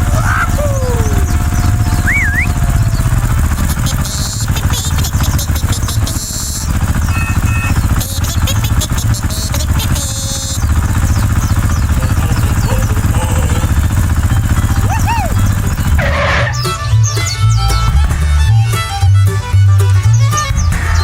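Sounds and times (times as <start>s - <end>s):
small engine throbbing: 0.0s - 21.0s
short beeps: 7.1s - 7.8s.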